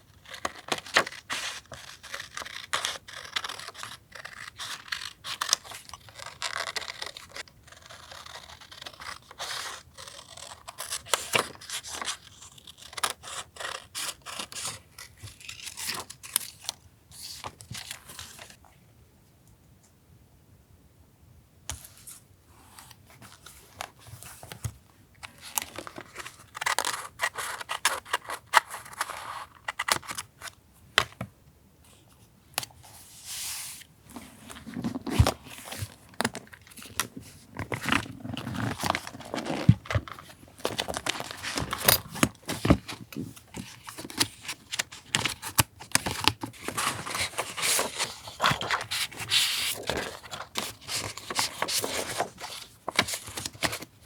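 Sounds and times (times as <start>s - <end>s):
paper crinkling: 34.1s - 54.0s.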